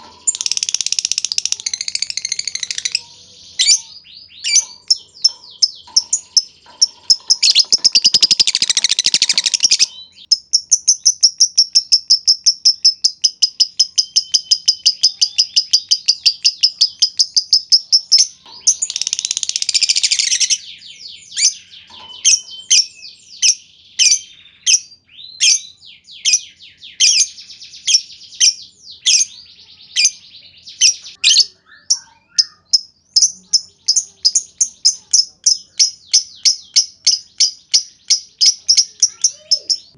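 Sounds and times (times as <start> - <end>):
bird rattling trill: 0.0 - 3.0, 4.5 - 12.6
lovebird chirping: 0.0 - 39.9.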